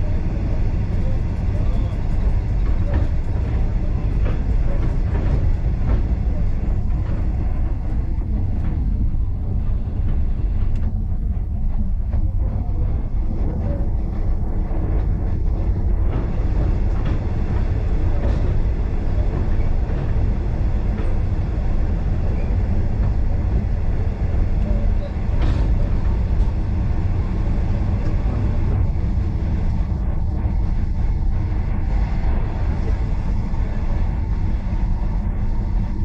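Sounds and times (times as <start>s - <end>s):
train rumbling on rails: 0.0s - 36.0s.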